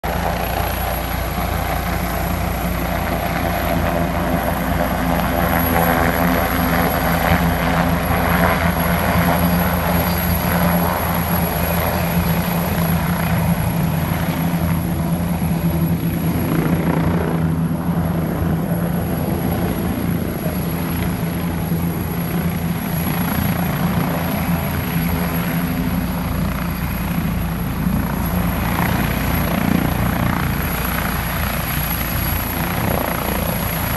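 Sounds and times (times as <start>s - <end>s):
helicopter engine drone: 0.0s - 33.9s
helicopter rotor beat: 0.0s - 33.9s.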